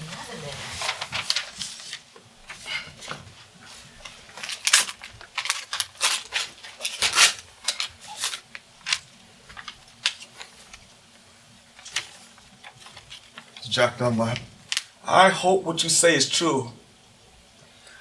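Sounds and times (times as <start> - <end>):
paper rustling and crinkling: 0.0 - 11.0, 11.7 - 14.9.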